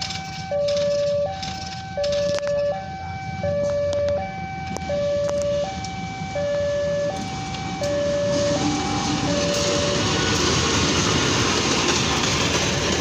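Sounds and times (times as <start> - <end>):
electronic two-tone warning alarm: 0.0 - 10.4
rumble of approaching train: 0.0 - 13.0.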